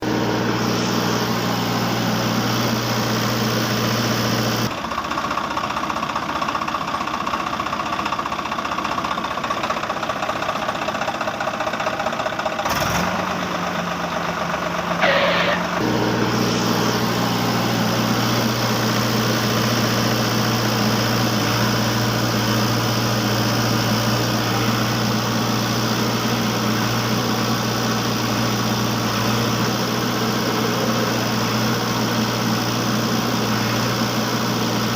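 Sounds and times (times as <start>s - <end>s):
engine humming: 0.0s - 5.4s, 11.0s - 34.9s
brief higher tone: 15.0s - 15.8s.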